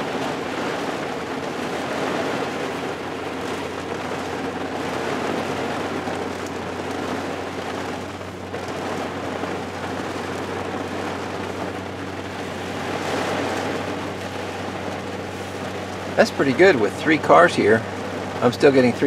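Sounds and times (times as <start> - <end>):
hard rain falling: 0.0 - 19.0.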